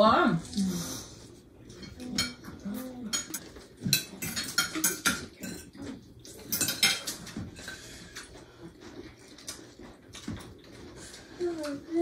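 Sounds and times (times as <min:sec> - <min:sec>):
cutlery clinking on plates: 0:01.7 - 0:08.4.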